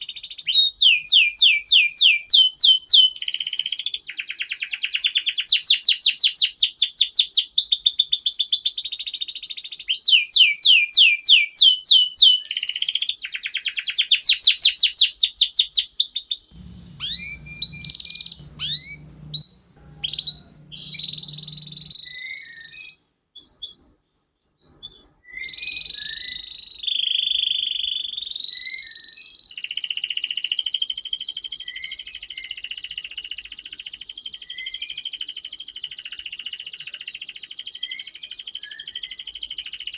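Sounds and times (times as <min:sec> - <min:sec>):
canary singing trills and warble: 0:00.0 - 0:23.9.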